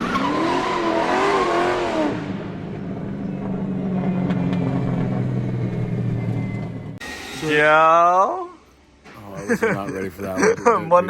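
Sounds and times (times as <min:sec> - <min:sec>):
car engine revving and idling: 0:00.0 - 0:07.0.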